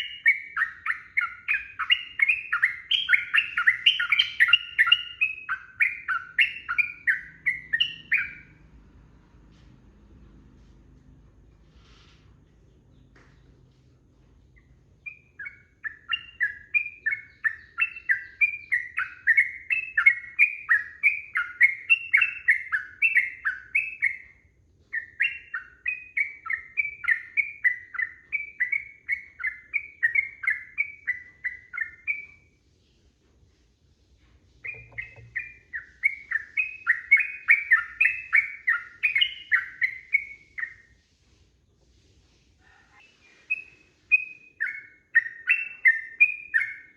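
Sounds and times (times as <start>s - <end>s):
bird singing bubbly chirps: 34.6s - 40.8s.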